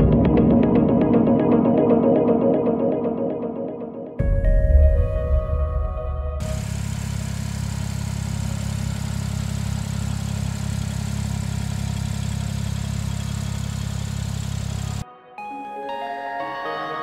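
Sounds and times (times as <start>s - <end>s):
car engine idling: 6.4s - 15.0s.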